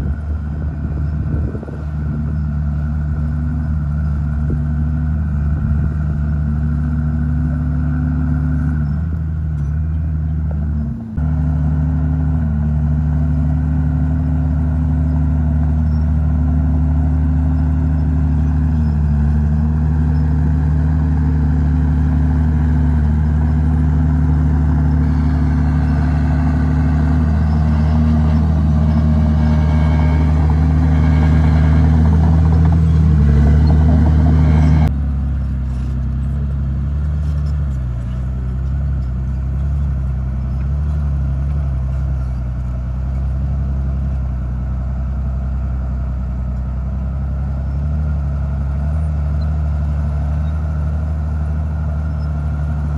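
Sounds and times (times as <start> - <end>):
bulldozer diesel engine under load: 0.0 - 52.9
blade pushing dirt: 16.7 - 34.9.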